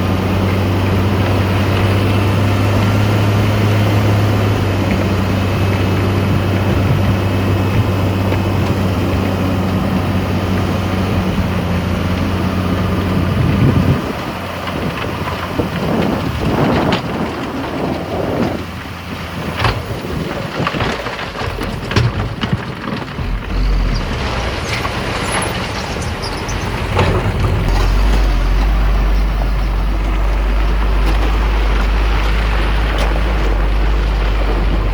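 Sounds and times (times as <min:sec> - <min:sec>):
deep rumble: 0:00.0 - 0:34.9
diesel engine humming: 0:00.0 - 0:34.9
knocks and rattles: 0:13.7 - 0:34.9.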